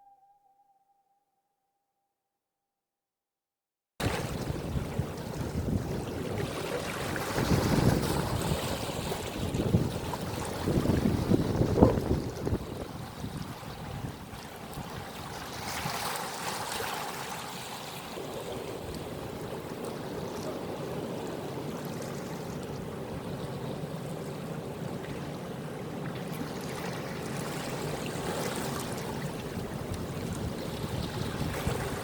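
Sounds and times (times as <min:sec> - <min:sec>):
water rushing and splashing: 0:26.0 - 0:32.0.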